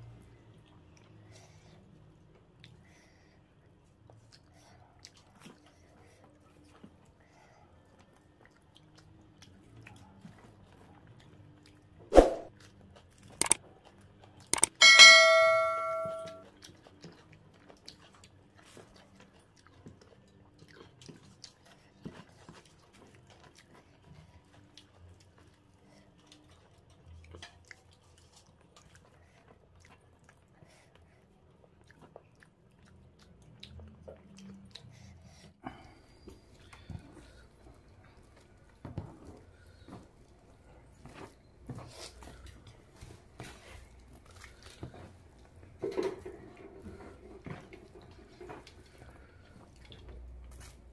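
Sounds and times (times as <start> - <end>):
person chewing food: 7.8 - 14.7, 16.4 - 50.9
click: 14.6 - 14.8
metallic ding ringing: 14.6 - 16.4.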